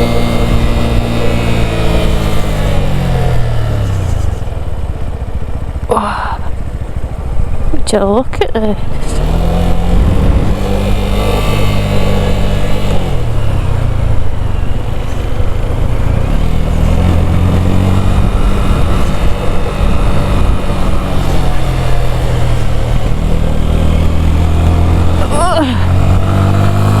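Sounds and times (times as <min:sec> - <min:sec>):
motorcycle engine running: 0:00.0 - 0:27.0
wind rush: 0:08.8 - 0:14.5, 0:15.6 - 0:27.0.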